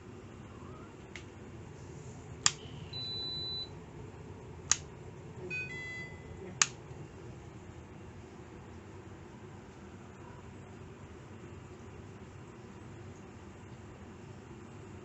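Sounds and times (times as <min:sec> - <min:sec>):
electronic beeps: 0:02.6 - 0:03.7.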